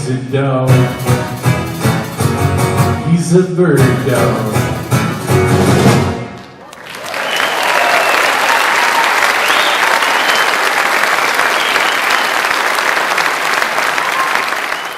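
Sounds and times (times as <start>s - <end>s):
audience applauding and cheering: 6.4s - 14.9s
shouts: 6.6s - 10.3s, 13.8s - 14.8s
whistles: 7.0s - 8.4s, 9.0s - 12.6s, 13.9s - 14.9s.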